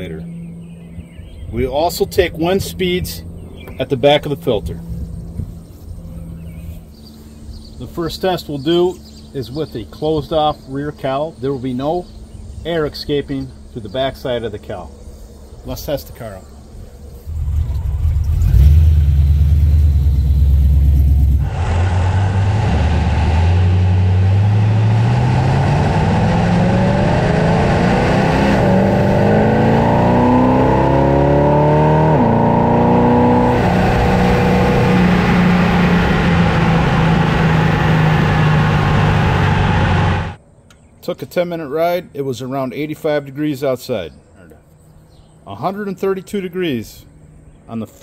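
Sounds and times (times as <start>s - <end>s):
car engine accelerating: 17.2s - 40.4s.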